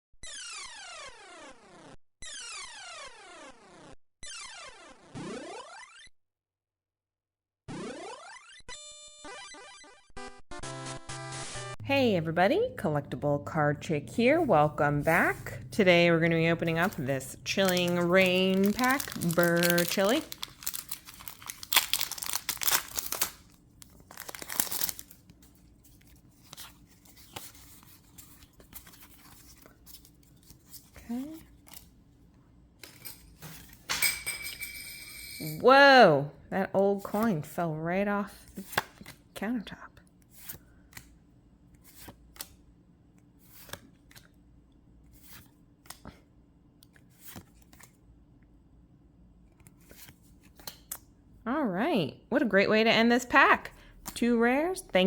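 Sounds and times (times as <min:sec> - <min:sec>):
foil wrapper tearing and crinkling: 0:16.8 - 0:30.3
cards sliding papery swishes: 0:40.3 - 0:41.1, 0:41.8 - 0:42.5, 0:43.4 - 0:44.2, 0:45.1 - 0:46.0, 0:47.0 - 0:47.9.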